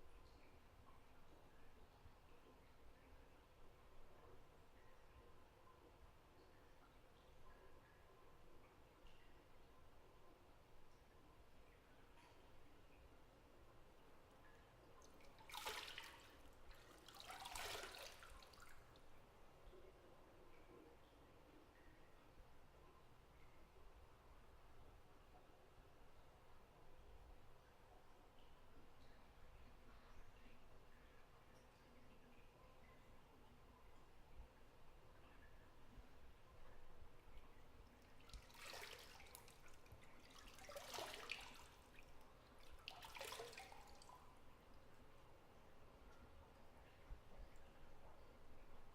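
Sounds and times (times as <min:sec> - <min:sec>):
water dripping: 0:00.0 - 0:48.9
bathwater sloshing and splashing: 0:15.0 - 0:19.1, 0:38.0 - 0:44.3.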